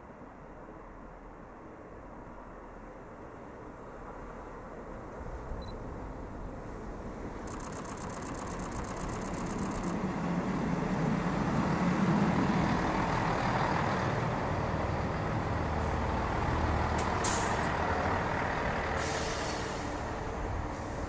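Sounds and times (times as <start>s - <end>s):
diesel train rumbling past: 9.5s - 21.0s.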